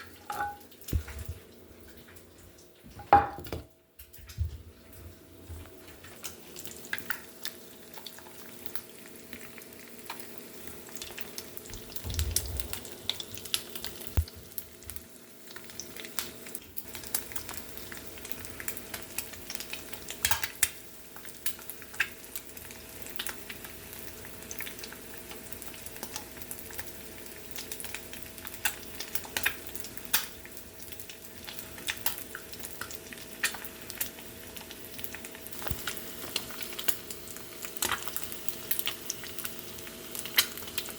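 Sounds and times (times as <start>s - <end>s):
eggs sizzling in a pan: 0.0s - 1.6s, 6.1s - 40.9s
utensil scraping and tapping pan: 0.2s - 1.1s.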